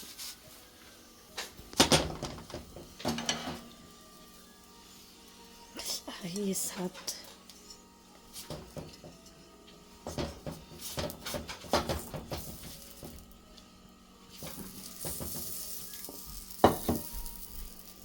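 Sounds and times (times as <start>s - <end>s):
flatbread sizzling on griddle: 0.0s - 5.8s, 7.6s - 18.0s
utensils knocking against pan: 1.8s - 3.8s, 8.4s - 9.3s, 10.0s - 13.2s, 14.4s - 18.0s.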